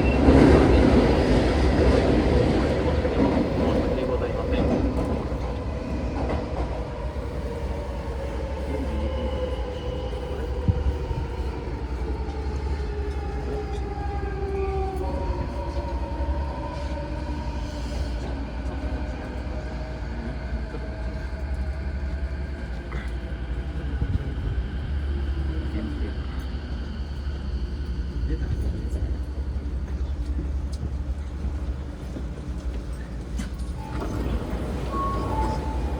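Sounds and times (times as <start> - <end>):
train rumble: 0.0 - 35.9.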